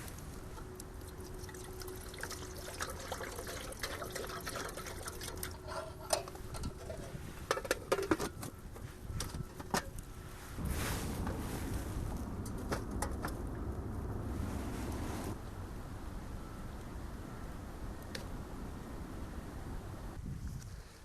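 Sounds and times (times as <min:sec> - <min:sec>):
rush of noise: 0:10.4 - 0:16.4.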